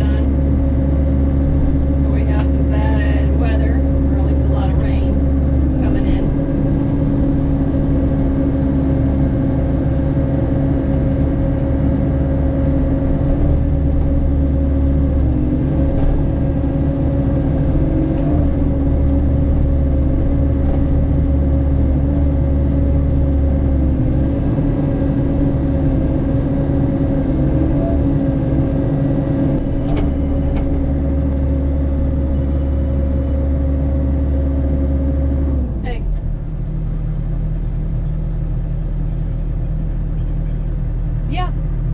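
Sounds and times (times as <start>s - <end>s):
mini excavator running under load: 0.0s - 41.9s.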